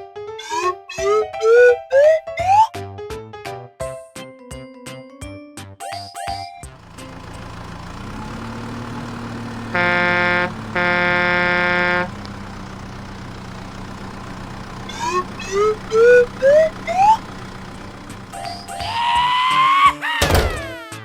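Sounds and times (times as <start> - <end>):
cartoon engine hum: 0.4 - 2.7, 6.9 - 19.7
cartoon horn honks: 0.4 - 2.7, 9.4 - 12.2, 14.9 - 17.2
short rising whistles: 14.9 - 17.3.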